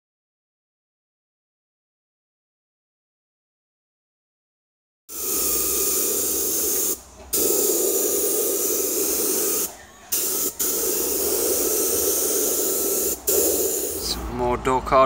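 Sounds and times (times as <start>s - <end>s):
paint spray gun hissing: 5.1s - 14.2s.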